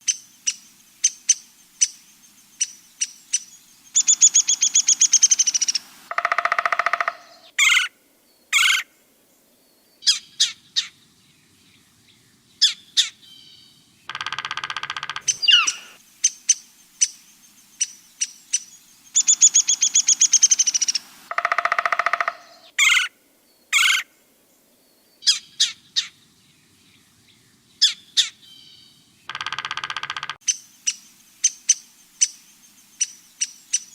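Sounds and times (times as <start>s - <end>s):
bird chirps: 0.0s - 7.9s, 10.0s - 23.1s, 25.0s - 33.9s
bird trill: 0.0s - 7.9s, 12.6s - 23.1s, 27.8s - 33.9s
harsh rattling bird calls: 0.0s - 7.9s, 8.5s - 8.9s, 12.6s - 23.1s, 23.7s - 24.1s, 27.8s - 33.9s.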